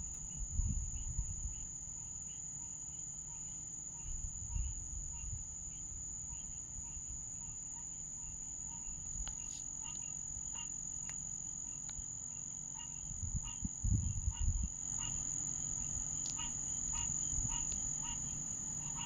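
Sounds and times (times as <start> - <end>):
high-pitched insect drone: 0.0 - 19.0
frogs calling: 0.3 - 19.0.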